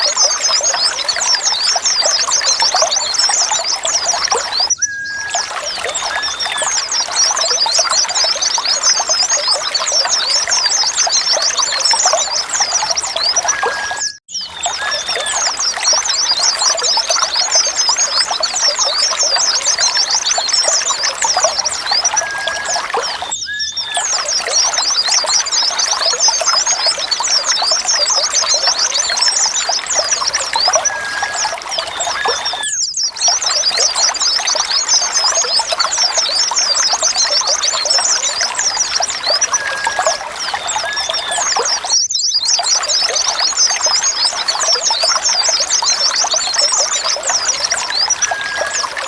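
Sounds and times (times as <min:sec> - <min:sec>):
flock of birds twittering: 0:00.0 - 0:49.0.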